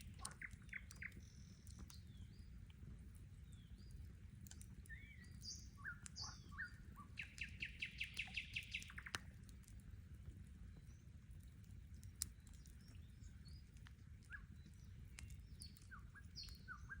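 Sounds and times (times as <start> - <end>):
birds singing: 0.0 - 2.7, 3.3 - 9.3, 12.2 - 17.0
campfire crackling: 0.0 - 17.0
low steady rumble: 0.0 - 17.0.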